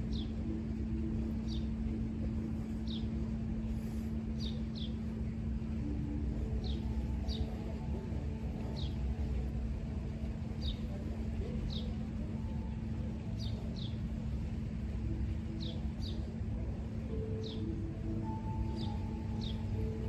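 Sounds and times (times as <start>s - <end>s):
constant hum: 0.0s - 20.0s
bird chirping: 1.2s - 5.1s, 6.4s - 9.5s, 10.6s - 12.7s, 17.1s - 20.0s.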